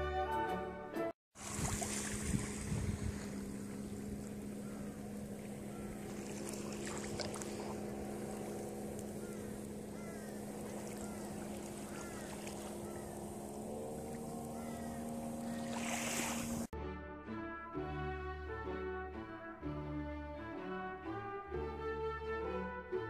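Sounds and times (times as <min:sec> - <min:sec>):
wind or water wash: 0:01.4 - 0:16.7
low drone of held tones: 0:02.1 - 0:16.7.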